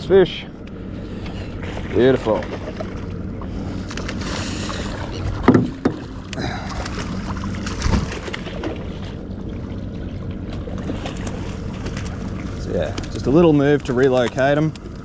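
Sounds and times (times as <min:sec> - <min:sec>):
boat engine hum: 0:00.0 - 0:15.0
wind and water noise: 0:00.0 - 0:15.0.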